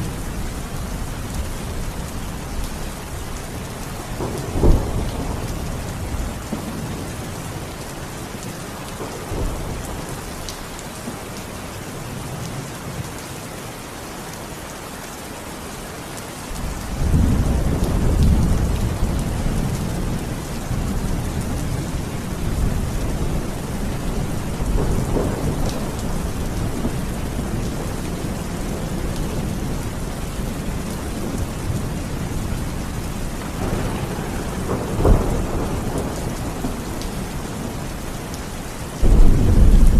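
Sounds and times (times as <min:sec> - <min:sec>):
heavy rain: 0:00.0 - 0:39.9
rolling thunder: 0:04.1 - 0:07.5, 0:16.6 - 0:38.4, 0:39.0 - 0:39.9.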